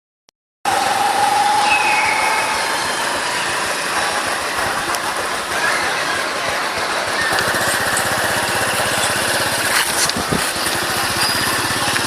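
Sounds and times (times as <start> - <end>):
motorbike road noise: 0.7 - 12.0
steady high whine: 0.7 - 12.0
wind rushing over microphone: 10.0 - 10.6.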